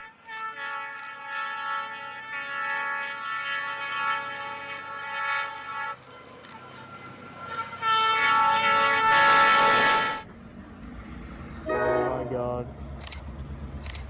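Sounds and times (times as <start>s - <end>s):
train horn blasts: 0.0s - 6.1s, 7.6s - 10.3s, 11.6s - 12.6s.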